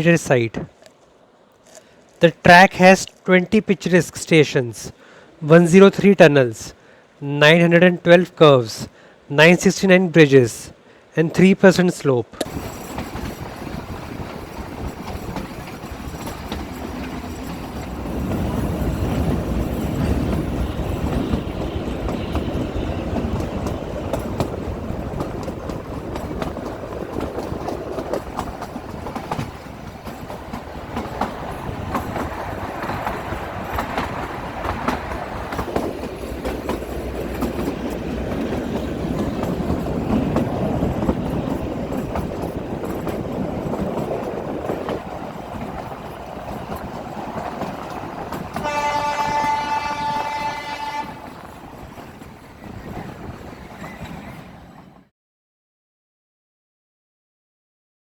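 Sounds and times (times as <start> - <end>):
train running on track: 0.0 - 55.1
wheels clacking over rail joints: 12.4 - 55.0.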